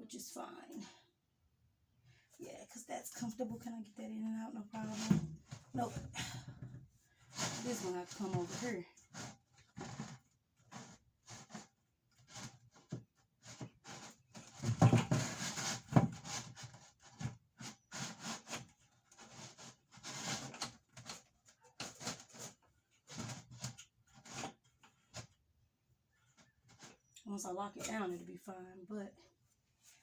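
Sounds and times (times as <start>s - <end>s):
knocks clunks and scraping: 4.8s - 25.4s.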